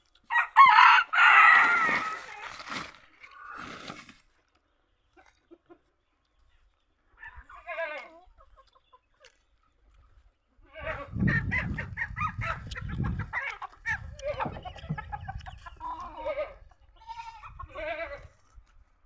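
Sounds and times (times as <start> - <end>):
chickens clucking and squawking: 0.3 - 4.0, 5.0 - 9.4, 10.6 - 18.3
goat bleating: 15.9 - 18.4.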